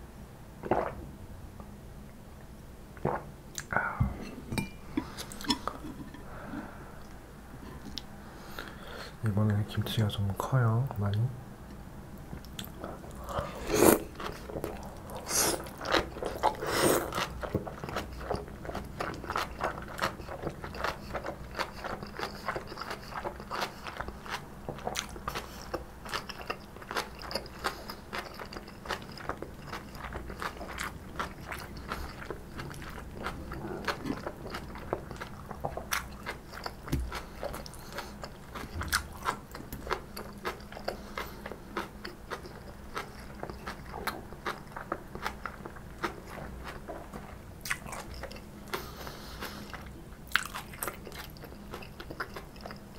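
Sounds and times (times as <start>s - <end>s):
crunchy chewing: 12.4s - 52.9s.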